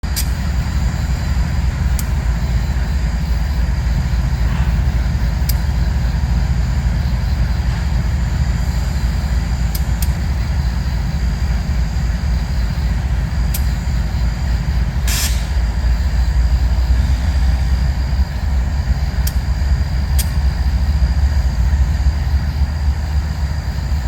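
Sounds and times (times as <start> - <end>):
freight train rumble: 0.0 - 24.0
faint clicks: 13.5 - 13.8, 20.1 - 20.5.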